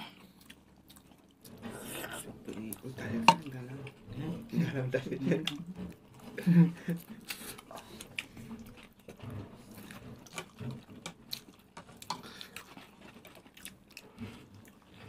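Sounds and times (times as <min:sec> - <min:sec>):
people chewing and biting: 0:00.0 - 0:04.1, 0:05.3 - 0:15.0.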